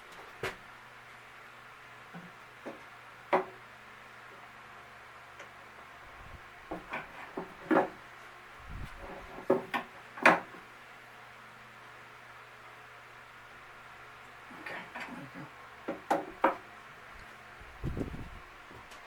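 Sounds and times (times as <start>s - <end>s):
wooden pieces knocking on bench: 6.7s - 8.0s, 9.0s - 10.6s, 15.9s - 16.7s.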